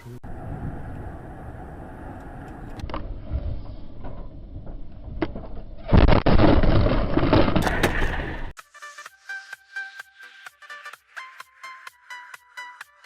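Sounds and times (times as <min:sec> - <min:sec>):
car road noise rumble: 0:00.0 - 0:05.5.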